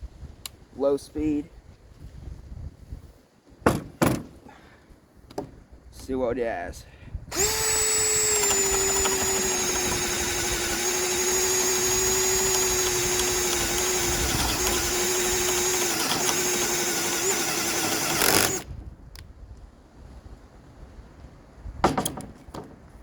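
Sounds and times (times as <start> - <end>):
power drill boring into wood: 7.3 - 18.7.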